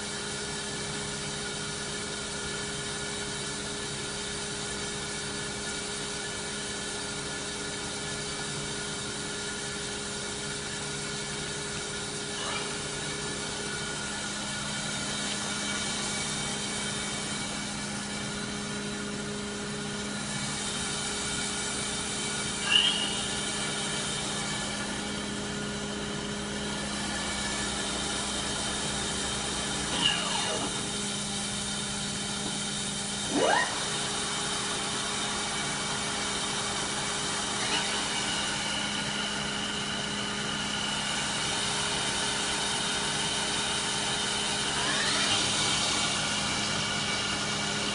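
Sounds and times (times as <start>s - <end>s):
machining center hum: 0.0s - 47.9s
short pitch-sweeping whines: 12.2s - 17.6s, 22.1s - 25.4s, 26.5s - 31.0s, 33.2s - 35.8s, 37.1s - 41.3s, 44.6s - 47.9s.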